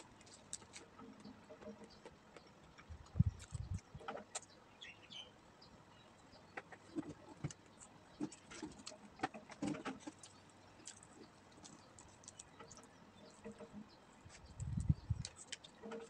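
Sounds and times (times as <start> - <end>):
chewing and lip-smacking: 10.0 - 12.8.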